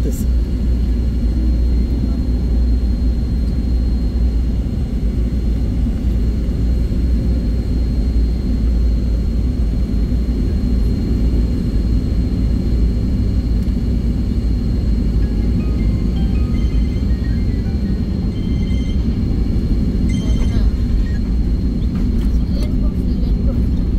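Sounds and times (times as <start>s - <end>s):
jet engines droning in cabin: 0.0s - 23.9s
thin high whine: 14.9s - 21.9s.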